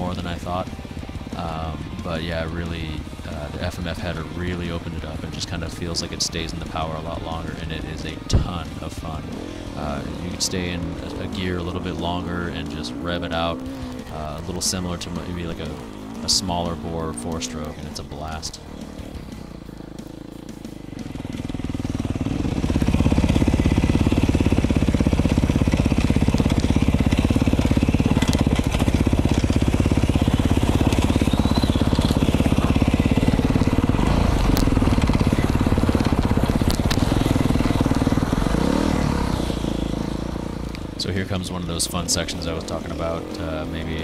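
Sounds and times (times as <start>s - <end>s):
motorcycle engine ridden hard: 0.0s - 44.0s
crunching dirt and rocks: 21.0s - 41.8s.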